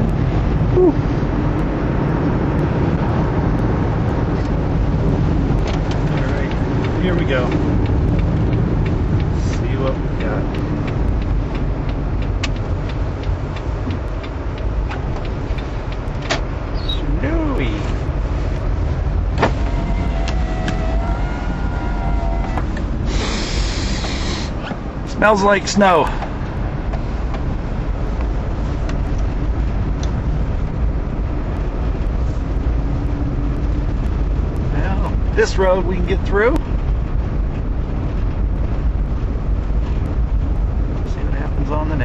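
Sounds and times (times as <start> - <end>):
engine and tyres rumbling: 0.0 - 42.0
light ticks: 5.6 - 16.5, 30.0 - 30.2.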